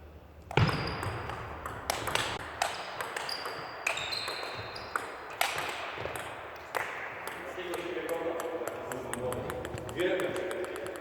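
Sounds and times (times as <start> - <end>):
table tennis ball clicks: 0.5 - 11.0
short high squeaks: 3.2 - 5.0.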